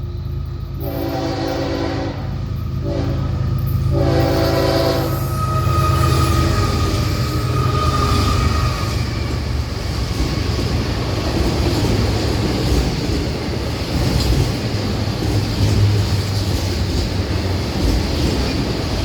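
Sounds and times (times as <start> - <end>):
freight train rumbling on rails: 0.0 - 19.0
locomotive horn: 0.8 - 9.2.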